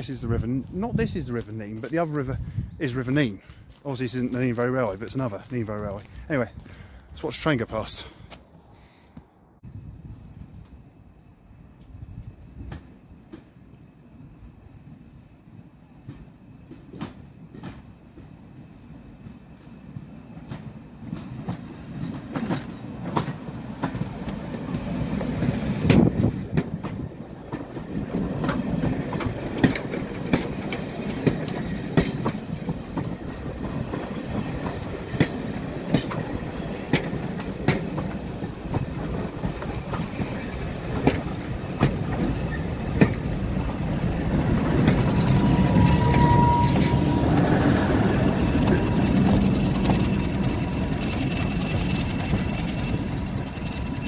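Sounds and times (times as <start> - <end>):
diesel locomotive engine: 0.0 - 54.0
train wheels clicking over rail joints: 16.0 - 54.0
short squeal: 45.0 - 54.0.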